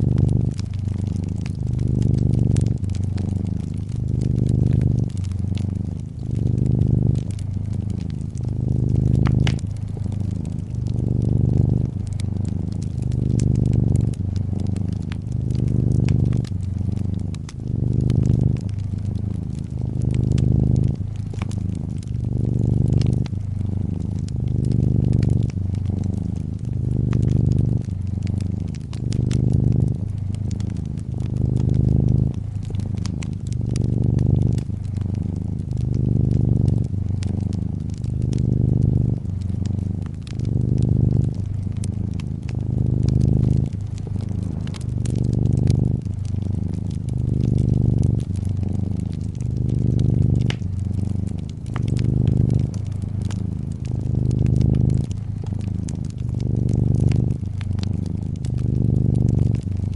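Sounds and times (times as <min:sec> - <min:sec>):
cat purring: 0:00.0 - 0:59.9
wood fire crackling: 0:00.0 - 0:59.9.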